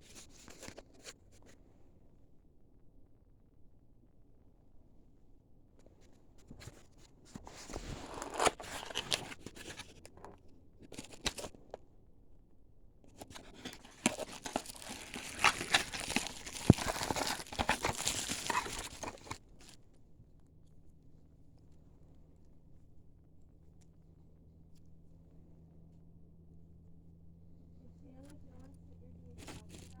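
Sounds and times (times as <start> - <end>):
packaging rustling and clicking: 7.6 - 11.6, 13.1 - 19.8, 29.4 - 30.0.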